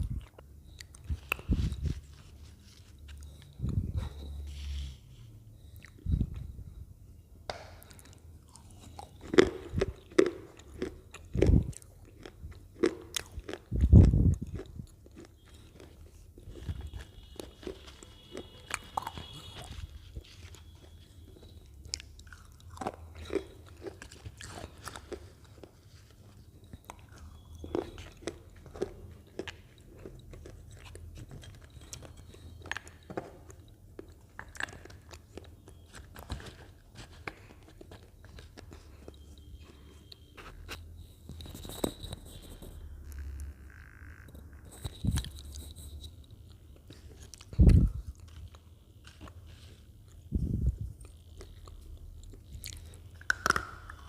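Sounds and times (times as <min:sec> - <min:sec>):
crunching potato chips: 0:07.8 - 0:40.0, 0:51.0 - 0:54.0.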